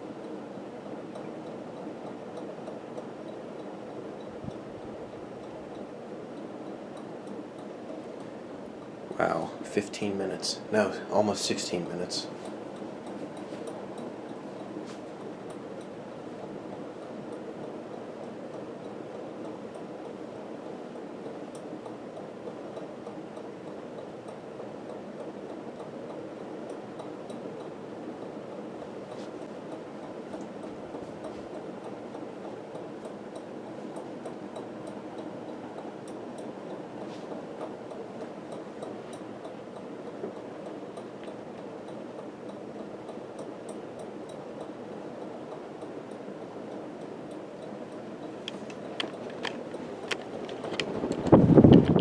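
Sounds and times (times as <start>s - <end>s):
ceiling fan running: 0.0s - 52.0s
faint irregular ticks: 12.3s - 52.0s.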